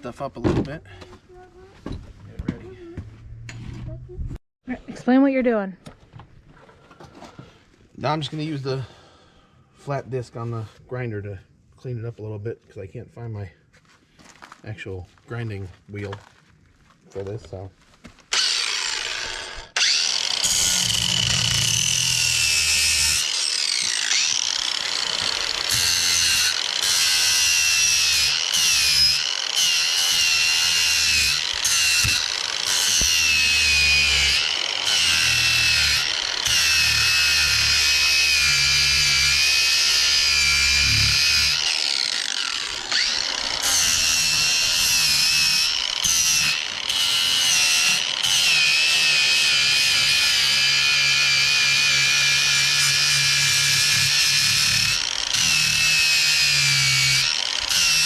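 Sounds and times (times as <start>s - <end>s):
angle grinder grinding metal: 18.3s - 58.0s.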